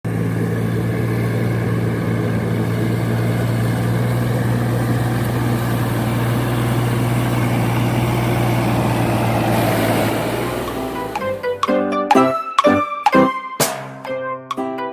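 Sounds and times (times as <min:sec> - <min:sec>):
tractor engine humming: 0:00.0 - 0:13.4.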